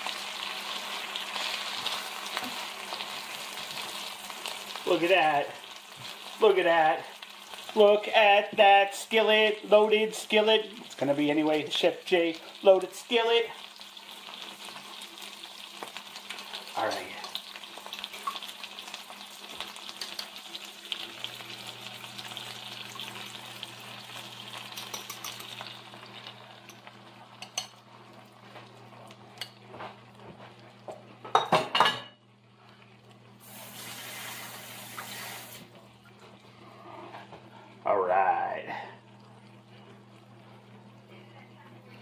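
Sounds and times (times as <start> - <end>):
food sizzling in a pan: 0.0 - 31.9, 32.6 - 35.8
cookware clattering: 24.7 - 25.7, 31.2 - 32.2
hiss: 33.4 - 35.6.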